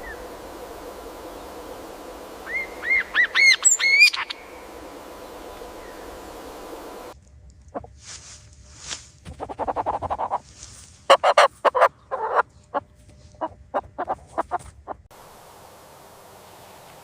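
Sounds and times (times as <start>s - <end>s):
loud chicken calls: 2.4s - 4.6s, 11.1s - 12.4s, 13.4s - 14.6s
chickens clucking: 9.4s - 10.4s, 11.1s - 15.1s.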